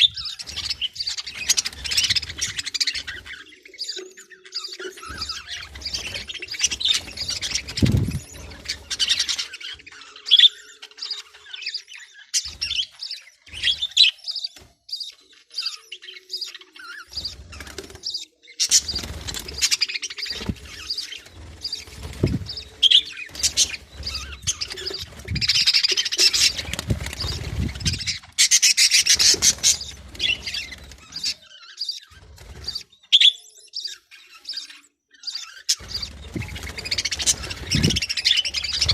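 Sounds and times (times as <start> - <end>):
parrots chirping and chattering: 0.0 - 38.9
parrots squawking: 19.6 - 31.3.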